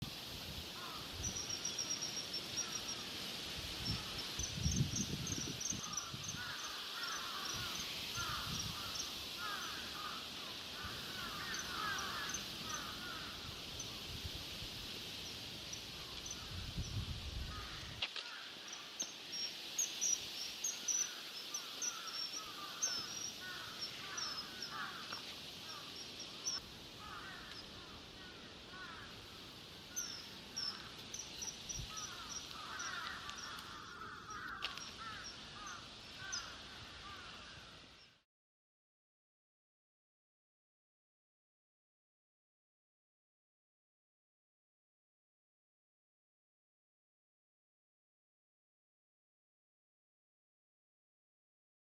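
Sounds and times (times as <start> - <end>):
steady hiss: 0.0 - 38.2
harsh bird calls: 0.8 - 14.2, 17.5 - 29.2, 29.9 - 37.7.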